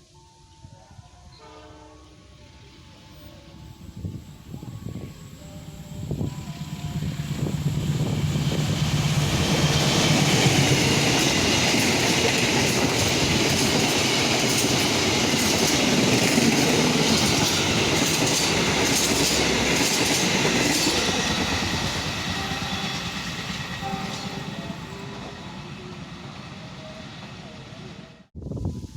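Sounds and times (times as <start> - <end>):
train wheels clattering over rails: 6.6 - 25.4.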